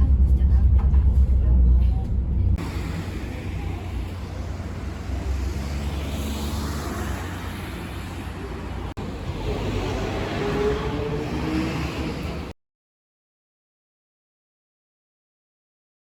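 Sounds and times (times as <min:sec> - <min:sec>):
boat engine rumbling: 0:00.0 - 0:12.5.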